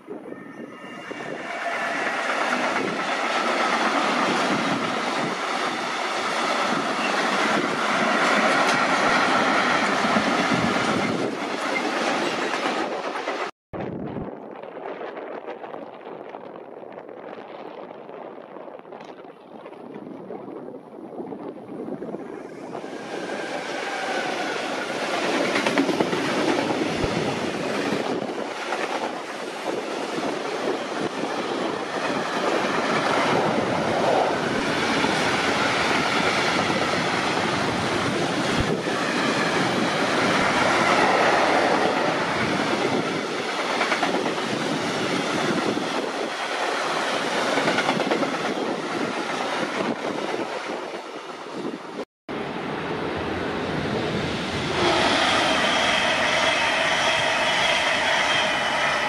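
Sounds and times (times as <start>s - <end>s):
train wheels clattering over rails: 22.9s - 29.9s.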